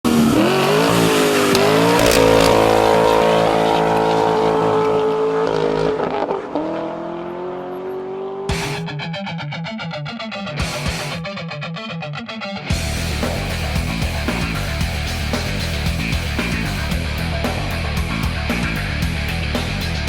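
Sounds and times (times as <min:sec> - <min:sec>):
car engine revving hard: 0:00.1 - 0:08.8.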